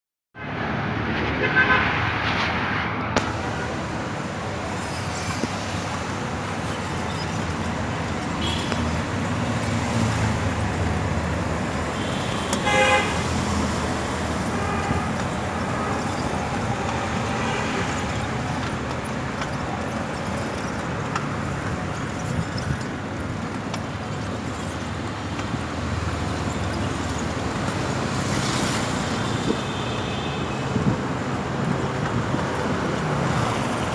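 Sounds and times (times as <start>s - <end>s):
road traffic: 0.4s - 33.9s
vehicle horns honking: 1.3s - 2.1s, 8.4s - 9.0s, 11.9s - 18.3s.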